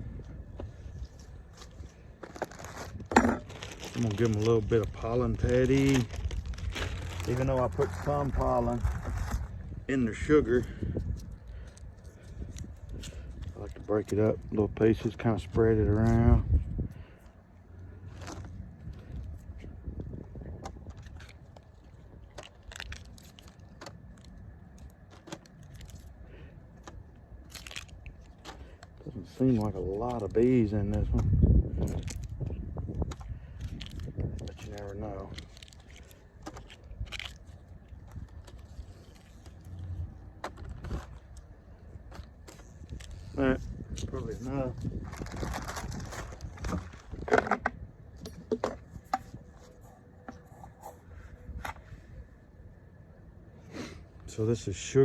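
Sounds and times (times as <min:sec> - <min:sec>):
steady low rumble: 0:00.0 - 0:55.0
patty crackling as broken by hand: 0:01.5 - 0:08.7
knocks of equipment handled: 0:03.1 - 0:03.6.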